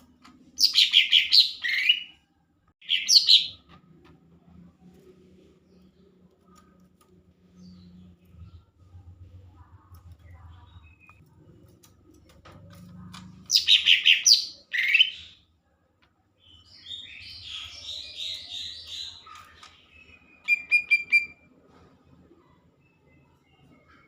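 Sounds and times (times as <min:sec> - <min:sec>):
bird singing: 0:00.6 - 0:02.2, 0:02.8 - 0:03.7, 0:13.3 - 0:15.4, 0:16.4 - 0:21.4.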